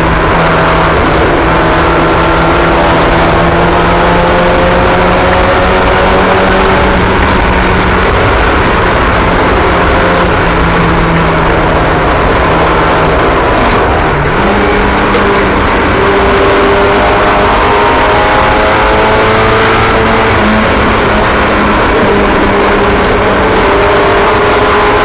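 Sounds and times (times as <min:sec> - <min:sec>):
small racing engines at high revs: 0:00.0 - 0:25.0.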